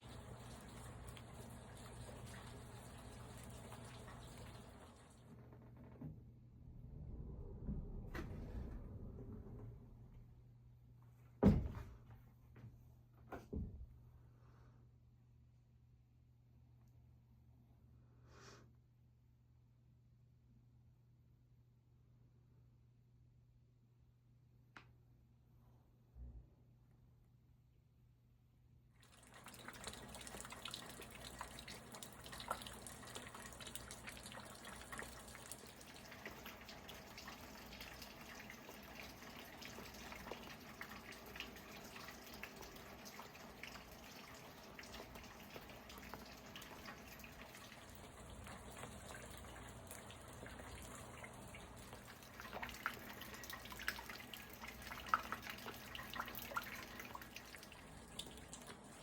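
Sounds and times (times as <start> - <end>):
faint rain falling: 0.0 - 5.3, 29.1 - 59.0
water drips landing: 29.1 - 59.0.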